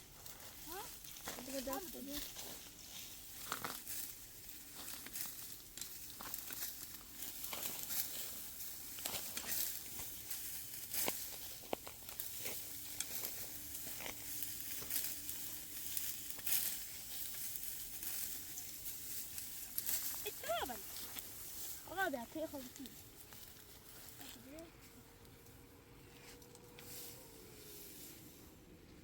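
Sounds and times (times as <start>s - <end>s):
dry rustling and crinkling: 0.0s - 29.0s.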